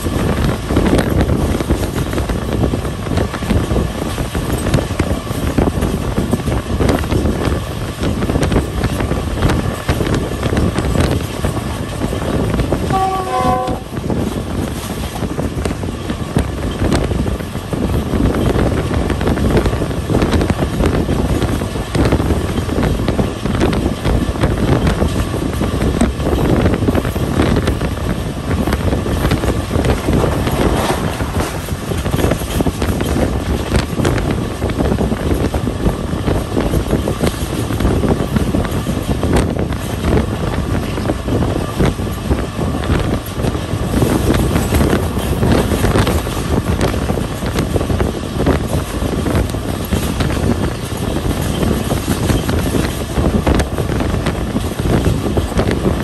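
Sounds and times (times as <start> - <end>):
train rumbling along track: 0.0 - 56.0
train horn blast: 12.9 - 14.0.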